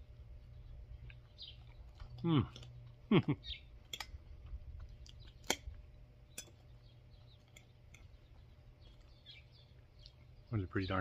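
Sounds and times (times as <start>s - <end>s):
low steady background hum: 0.0s - 11.0s
person chewing: 1.0s - 9.2s.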